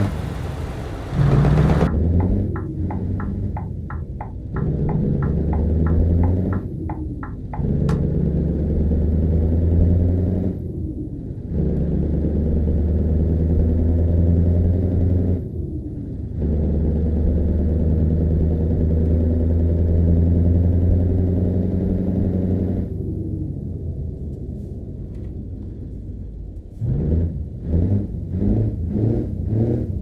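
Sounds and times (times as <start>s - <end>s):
truck engine running: 0.0s - 23.6s.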